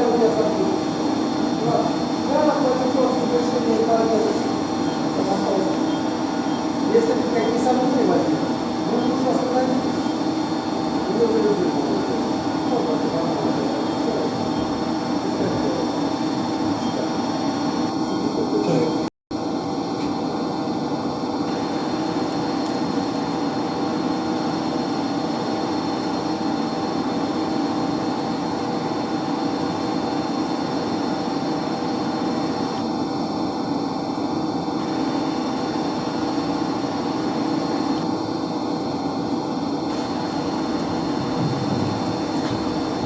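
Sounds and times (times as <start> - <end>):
circulation pumps humming: 0.0 - 43.0.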